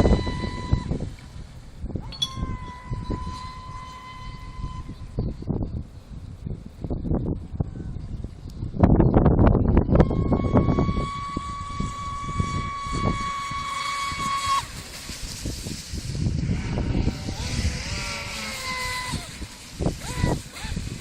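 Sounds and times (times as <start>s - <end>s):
model boat motor whine: 0.0s - 1.4s, 10.0s - 14.7s, 16.2s - 21.0s.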